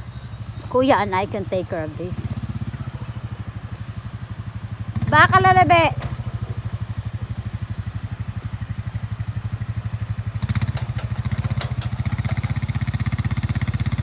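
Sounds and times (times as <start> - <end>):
atv engine running: 0.0 - 14.0
light clatters: 10.6 - 12.7.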